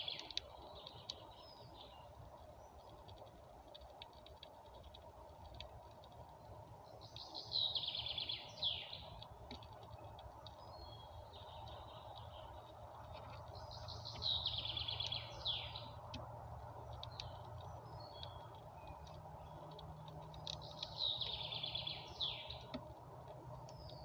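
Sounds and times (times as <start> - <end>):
steady low background hum: 0.0 - 24.0
songbird trilling: 13.6 - 16.0, 20.6 - 22.7.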